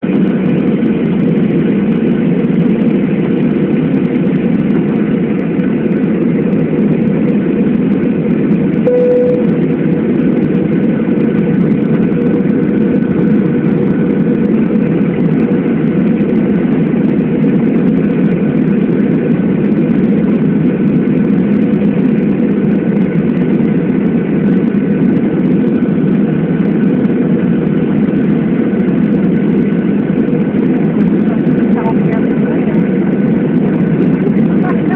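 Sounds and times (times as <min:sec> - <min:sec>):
jet engine cabin drone: 0:00.0 - 0:34.9
cabin tone: 0:08.9 - 0:09.6.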